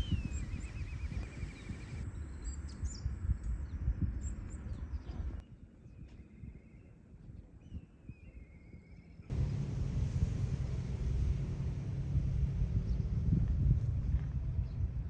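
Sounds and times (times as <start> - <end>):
low rumbling noise: 9.3 - 15.0.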